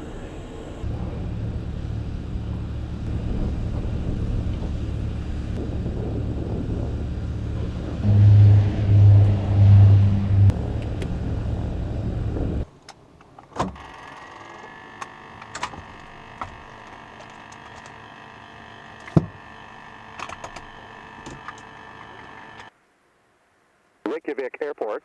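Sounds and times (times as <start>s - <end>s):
faint rising whine: 0.0s - 12.7s
loud low rumble: 0.0s - 12.7s
electrical hum: 0.0s - 12.8s, 13.8s - 22.7s.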